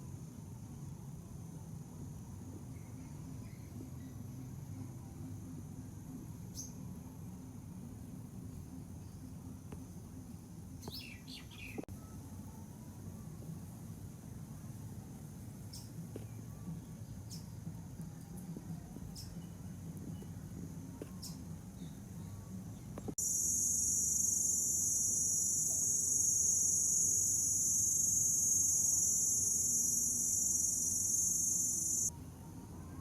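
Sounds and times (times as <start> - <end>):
shrill insect chorus: 23.2 - 32.1.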